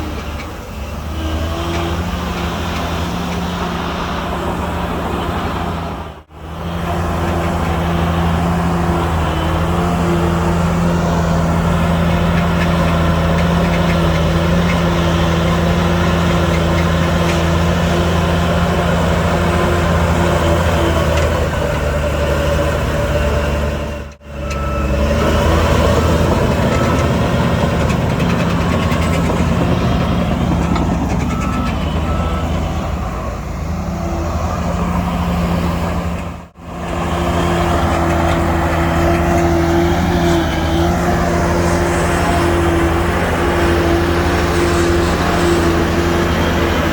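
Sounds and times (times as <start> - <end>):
heavy machinery diesel engine: 0.0 - 46.9
reversing alarm beeping: 24.3 - 33.4.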